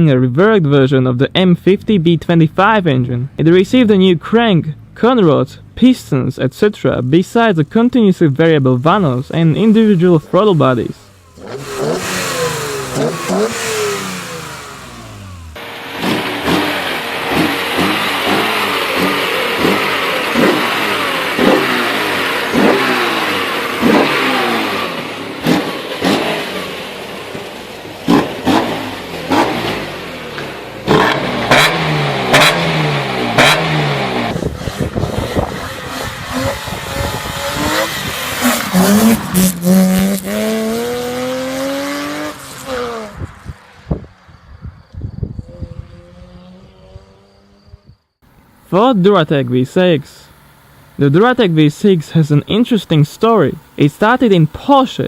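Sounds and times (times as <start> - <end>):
engine revving hard: 8.4 - 44.0, 45.4 - 48.9.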